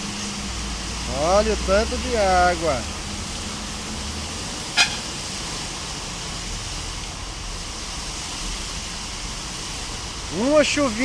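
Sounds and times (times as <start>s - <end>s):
car horn toot: 4.8s - 5.1s
floodwater rushing down street: 6.8s - 11.0s.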